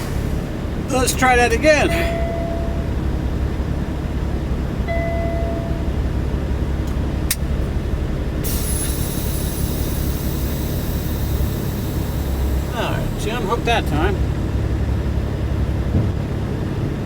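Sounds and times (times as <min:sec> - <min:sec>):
diesel truck engine running: 0:00.0 - 0:17.0
short beep: 0:01.8 - 0:03.2, 0:04.9 - 0:06.0.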